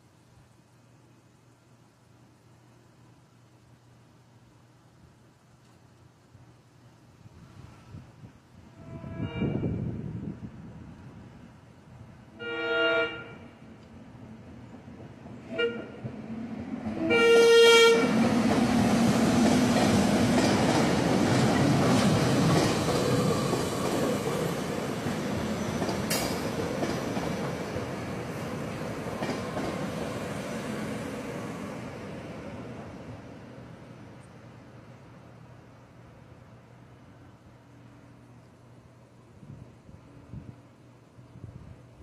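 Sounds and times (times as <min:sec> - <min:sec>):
train horn: 0:08.7 - 0:10.0, 0:12.3 - 0:13.6, 0:15.4 - 0:16.1, 0:16.9 - 0:18.2
wheels clattering on rails: 0:18.1 - 0:30.5.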